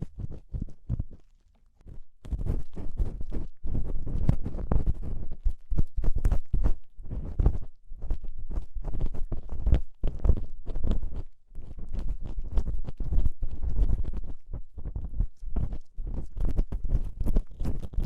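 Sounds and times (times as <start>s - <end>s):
ear-cleaning tool scraping microphone: 1.9s - 18.0s.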